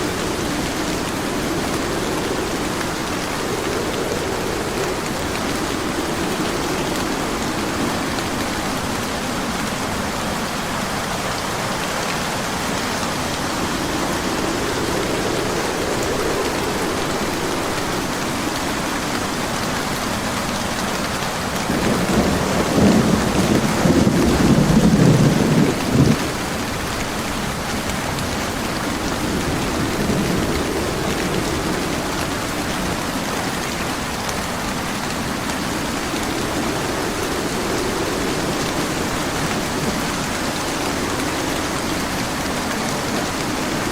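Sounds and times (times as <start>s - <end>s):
thunder rumbling: 0.0s - 20.5s, 21.1s - 43.9s
steady rain hissing: 0.0s - 43.9s.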